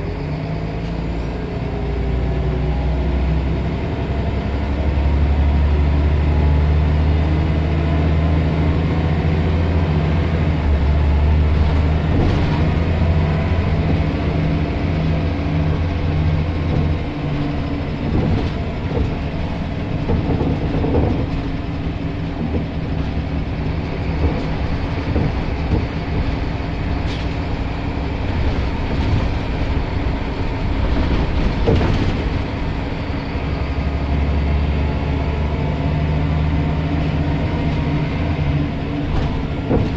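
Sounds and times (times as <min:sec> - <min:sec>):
bus diesel engine pulling: 0:00.0 - 0:39.9
bus interior rattles: 0:00.0 - 0:39.9
moving bus rumble: 0:00.0 - 0:39.9.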